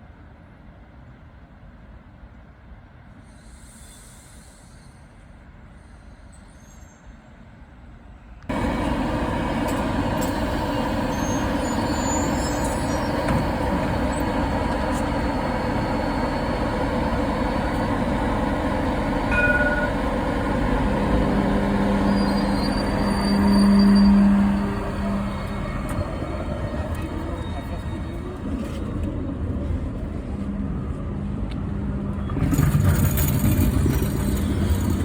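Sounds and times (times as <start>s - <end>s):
tram rumble: 7.3s - 35.0s.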